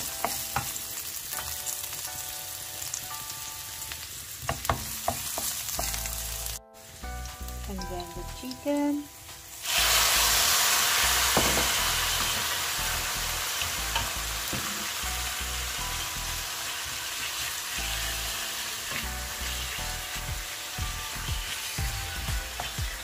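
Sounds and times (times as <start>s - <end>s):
chicken sizzling in frying pan: 0.0s - 23.0s
wooden spatula knocking pan: 4.4s - 6.0s, 13.9s - 14.9s.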